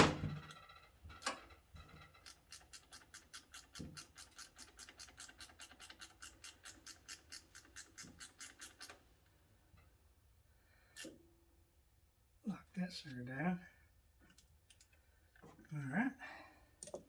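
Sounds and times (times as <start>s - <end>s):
hand ratchet clicking: 2.1s - 9.0s.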